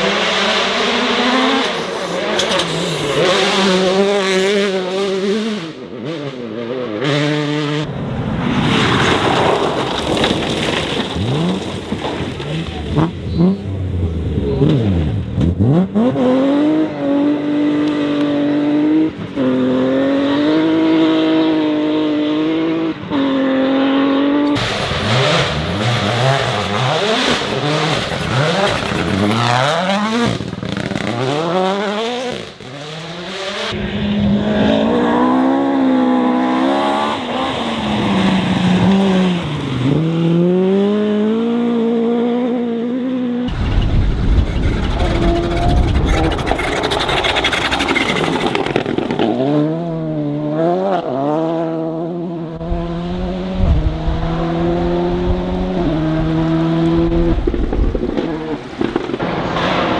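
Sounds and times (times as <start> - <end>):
cars passing by: 0.0 - 20.5, 43.5 - 51.8
rally car engines revving: 0.0 - 59.9.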